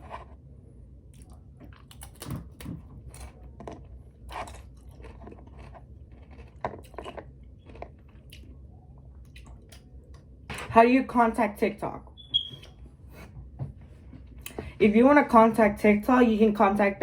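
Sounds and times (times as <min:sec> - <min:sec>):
person chewing crunchy food: 0:00.0 - 0:10.3.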